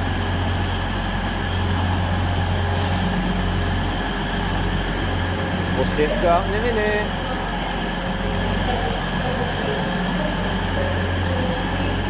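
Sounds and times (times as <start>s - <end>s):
train running with low hum: 0.0s - 12.0s.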